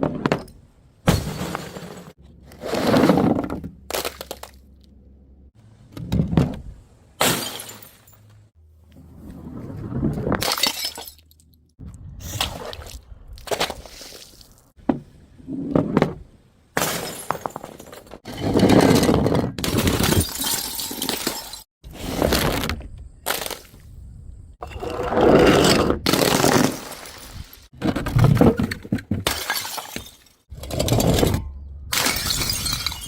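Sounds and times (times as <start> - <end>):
glass bottles shattering: 7.2 - 8.3, 10.4 - 11.4, 16.8 - 18.9, 19.7 - 21.7, 29.2 - 33.0.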